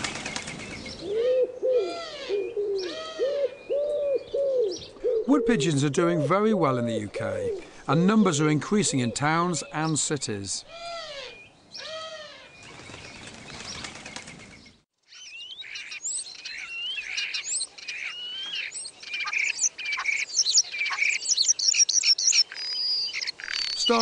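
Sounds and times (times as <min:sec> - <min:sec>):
pigeon wings flapping: 0:00.0 - 0:01.0, 0:12.6 - 0:14.7
starling singing: 0:01.8 - 0:14.0, 0:14.6 - 0:24.0.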